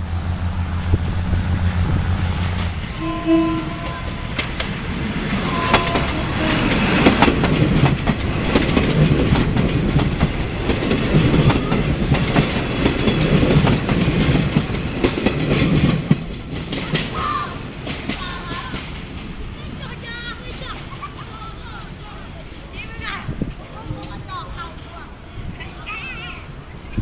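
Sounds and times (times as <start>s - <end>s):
train wheels clattering on rails: 3.6s - 21.3s.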